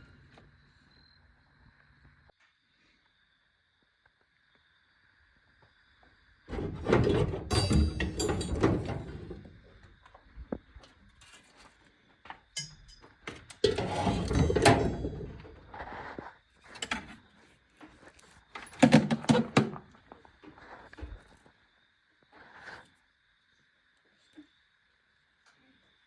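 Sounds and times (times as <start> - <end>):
tools knocking and clicking: 6.5 - 9.5, 12.6 - 13.8
metal scraping and rattling: 6.5 - 9.8, 12.6 - 15.9.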